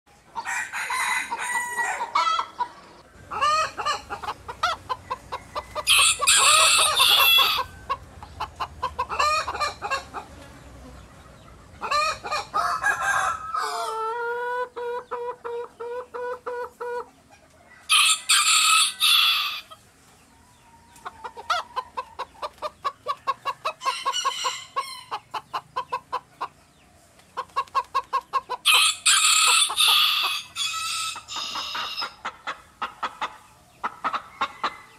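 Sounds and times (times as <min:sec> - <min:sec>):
chickens clucking: 0:00.1 - 0:34.9
rooster crowing: 0:00.4 - 0:02.5, 0:05.3 - 0:07.9, 0:12.0 - 0:14.1, 0:17.7 - 0:19.7, 0:23.8 - 0:25.1, 0:28.7 - 0:32.1
shrill chicken squawks: 0:05.8 - 0:07.7.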